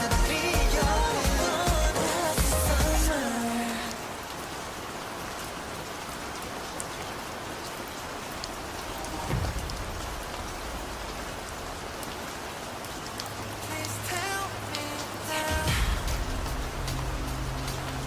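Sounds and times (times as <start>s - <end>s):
rain falling: 0.0s - 18.0s
low rumble: 9.0s - 12.4s, 15.7s - 18.0s.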